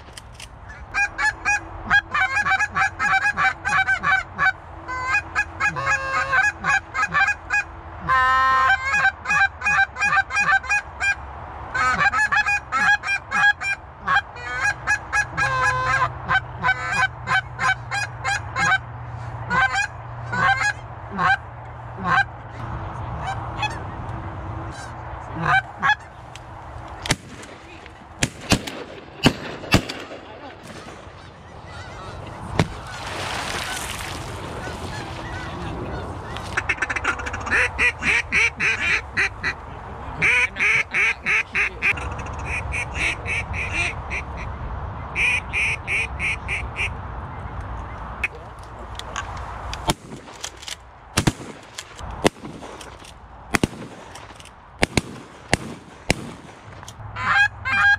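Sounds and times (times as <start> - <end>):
goose call honks and clucks: 0.7 - 18.9, 19.5 - 22.6, 23.2 - 23.9, 24.7 - 26.2, 34.6 - 39.6, 40.2 - 44.5, 45.2 - 47.0, 48.2 - 48.6, 57.1 - 57.9
sharp cracks: 26.3 - 31.5, 32.5 - 34.7, 48.6 - 57.0.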